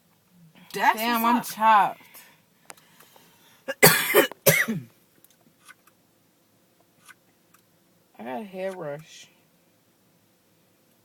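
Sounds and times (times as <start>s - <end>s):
person coughing: 3.7s - 4.9s.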